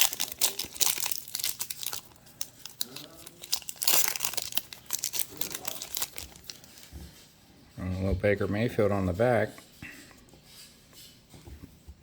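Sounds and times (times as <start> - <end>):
cellophane wrapper crinkling: 0.0 - 6.9.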